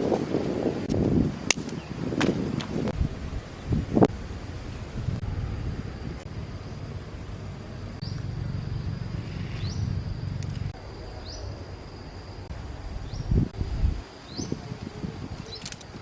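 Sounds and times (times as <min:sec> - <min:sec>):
low wind-like rumble: 0:00.0 - 0:16.0
loud thumps: 0:01.0 - 0:03.2
high insect drone: 0:01.2 - 0:16.0
short rising chirps: 0:05.3 - 0:11.4.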